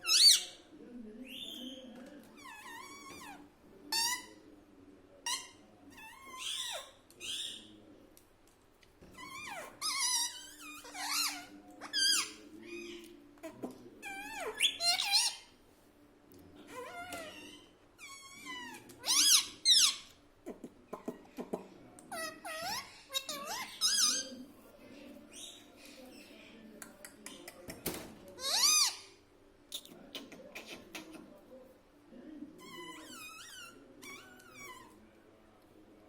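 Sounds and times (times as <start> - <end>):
parakeet squeaking and chattering: 0.0 - 0.6, 2.4 - 4.4, 5.3 - 7.7, 9.2 - 13.0, 14.0 - 15.5, 16.7 - 20.1, 22.1 - 24.4, 28.4 - 29.1, 32.6 - 34.9.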